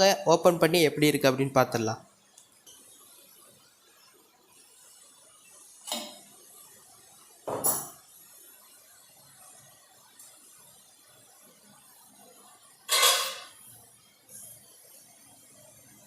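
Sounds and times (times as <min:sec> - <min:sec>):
metal cookware clinking: 0:05.9 - 0:06.3, 0:07.5 - 0:08.0, 0:12.8 - 0:13.6.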